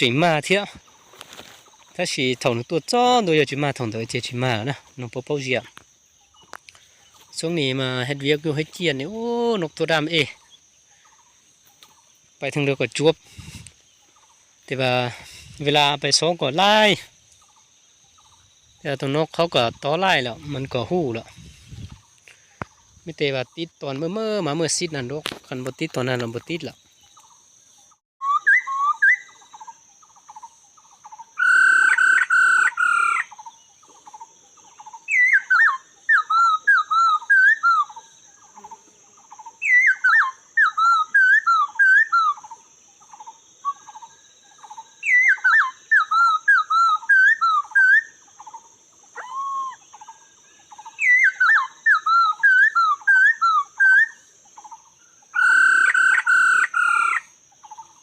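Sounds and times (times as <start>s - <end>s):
birds calling short clipped notes: 4.9s - 7.5s
swooping whistled bird phrase: 28.2s - 29.4s, 31.4s - 33.3s, 49.2s - 49.8s, 55.4s - 57.2s
harsh bird chattering: 28.4s - 38.0s, 55.4s - 58.0s.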